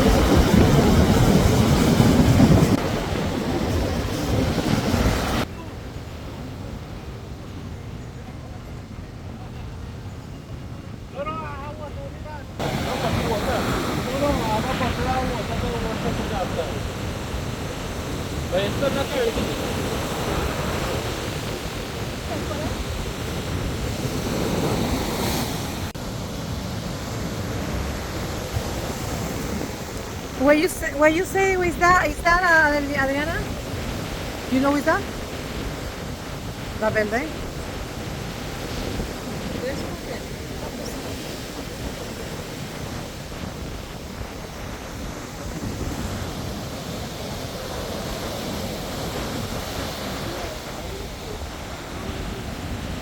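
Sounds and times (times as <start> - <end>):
wind on microphone: 0.0 - 11.1, 12.1 - 53.0
sea surf rushing: 0.0 - 53.0.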